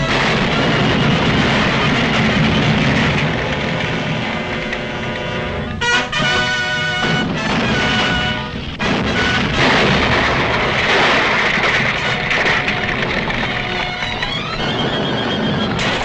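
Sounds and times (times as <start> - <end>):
crashing booming sound effect: 0.0 - 5.0, 7.0 - 16.0
orchestral chords: 4.5 - 9.6.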